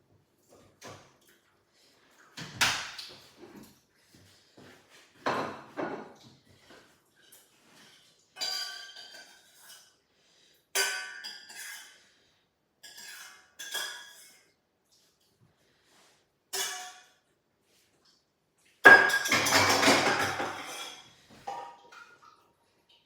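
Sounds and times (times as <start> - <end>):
cutlery clinking on dishes: 8.4 - 10.0, 10.8 - 12.0, 12.8 - 14.4, 16.5 - 17.2, 18.8 - 21.8.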